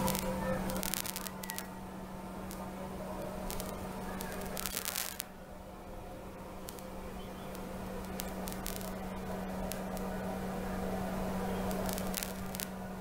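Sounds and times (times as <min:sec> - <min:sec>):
faint clicks: 0:00.0 - 0:01.8, 0:02.4 - 0:05.3, 0:06.6 - 0:10.2, 0:11.4 - 0:12.8
drone propellers humming: 0:00.0 - 0:13.0.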